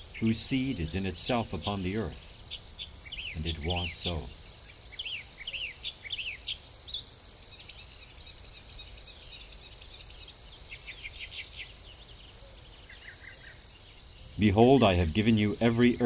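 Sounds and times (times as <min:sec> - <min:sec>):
birds chirping: 0:00.0 - 0:16.0
crickets trilling: 0:00.0 - 0:16.0.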